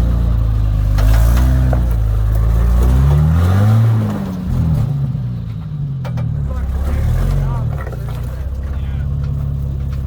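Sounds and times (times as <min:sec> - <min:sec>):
engine revving under load: 0:00.0 - 0:05.4, 0:06.4 - 0:07.8.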